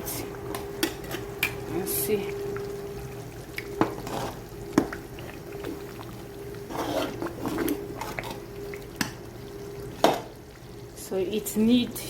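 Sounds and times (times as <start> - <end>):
steady hum: 0.0 - 12.0
stew being scooped: 6.5 - 8.4.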